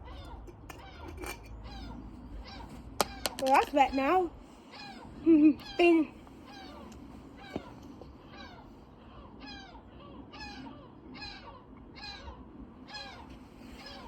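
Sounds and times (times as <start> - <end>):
bird cawing: 6.4 - 14.0.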